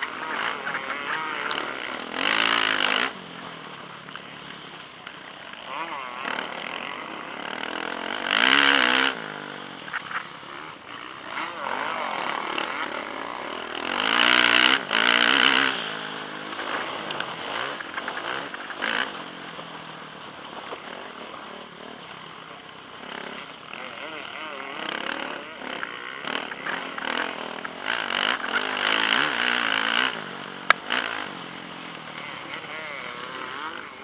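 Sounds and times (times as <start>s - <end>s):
motocross bike engine revving: 0.0s - 34.0s.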